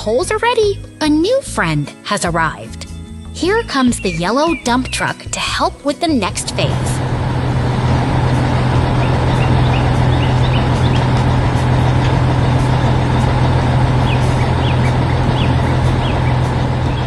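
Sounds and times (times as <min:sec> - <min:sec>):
truck engine humming: 0:06.1 - 0:17.0.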